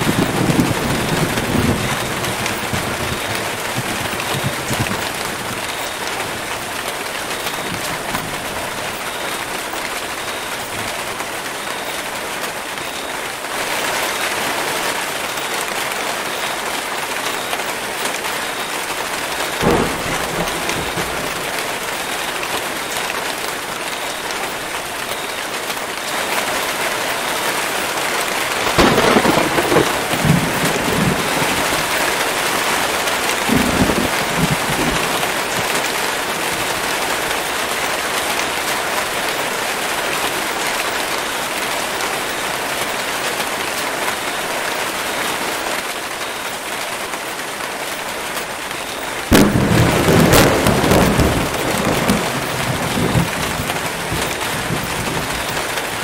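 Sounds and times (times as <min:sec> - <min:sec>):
loud thunderclap: 0:00.0 - 0:06.8, 0:19.6 - 0:22.2, 0:28.6 - 0:32.3, 0:33.4 - 0:35.7, 0:49.3 - 0:55.9
thunder rumbling: 0:00.0 - 0:11.3, 0:19.6 - 0:22.8, 0:28.5 - 0:37.5, 0:49.3 - 0:56.0
heavy rain on foliage: 0:00.0 - 0:56.0.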